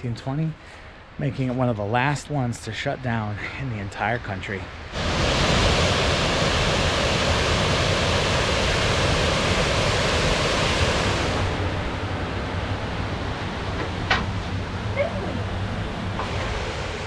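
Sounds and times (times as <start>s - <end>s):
water rushing over a dam: 4.2s - 12.1s, 14.6s - 17.0s.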